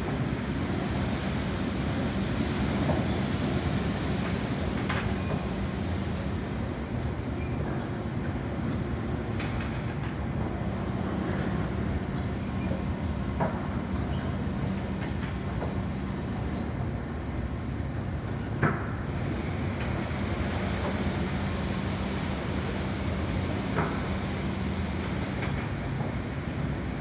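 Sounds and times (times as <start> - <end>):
car wash machinery rumbling: 0.0 - 27.0.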